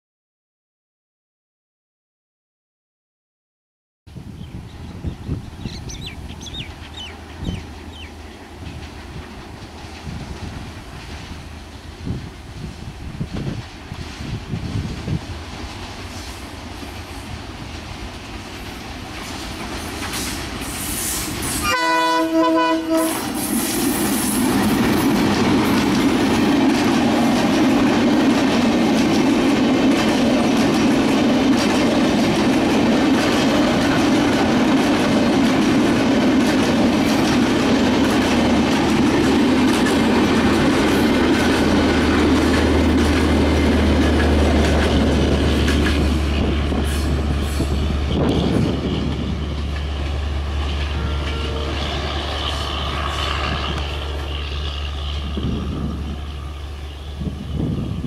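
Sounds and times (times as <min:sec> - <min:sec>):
diesel locomotive approaching: 0:04.1 - 0:58.0
train coaches rumbling past: 0:04.1 - 0:58.0
locomotive horn blast: 0:21.5 - 0:23.7, 0:50.3 - 0:57.4.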